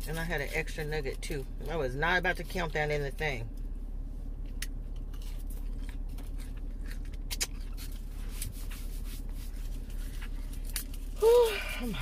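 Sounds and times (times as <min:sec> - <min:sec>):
steady low hum: 0:00.0 - 0:12.0
close-miked chewing: 0:04.9 - 0:09.0.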